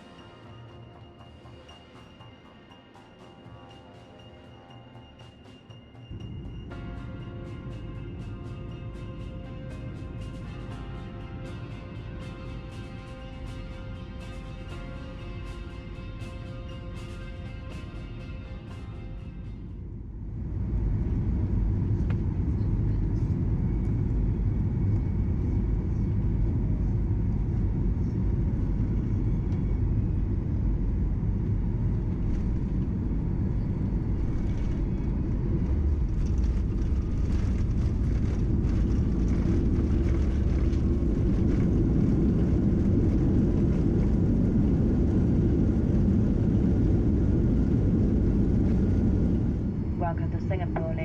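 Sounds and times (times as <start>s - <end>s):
airplane cabin engine rumble: 6.1s - 51.0s.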